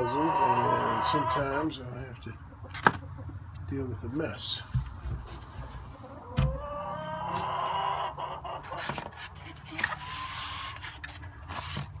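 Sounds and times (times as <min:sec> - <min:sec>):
hen calling: 0:00.0 - 0:01.7.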